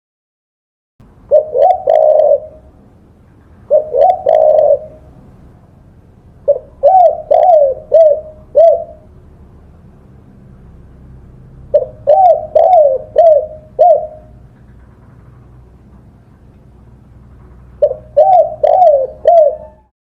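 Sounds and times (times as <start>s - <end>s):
dove cooing: 1.3s - 2.7s, 3.6s - 5.2s, 6.4s - 9.1s, 11.7s - 15.0s, 17.7s - 20.0s.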